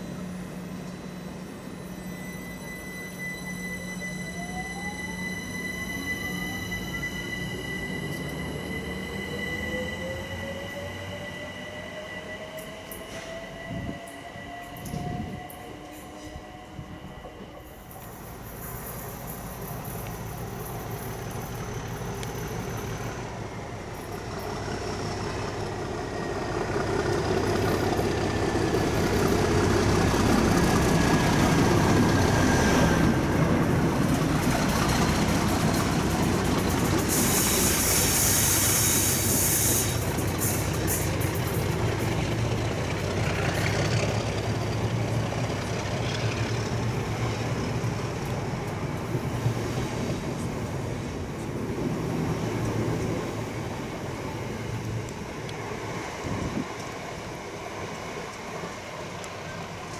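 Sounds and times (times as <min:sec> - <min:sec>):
faint thin wheel squeal: 0:00.0 - 0:11.6
locomotive engine running: 0:17.3 - 0:59.9
steel wheels rolling on rails: 0:17.3 - 0:59.9
short burst of hiss: 0:37.0 - 0:41.3.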